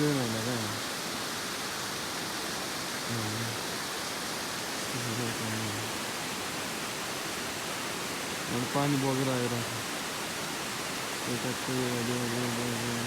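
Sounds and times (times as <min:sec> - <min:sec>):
stream water rushing: 0:00.0 - 0:13.0
low vocal sounds: 0:03.1 - 0:03.6.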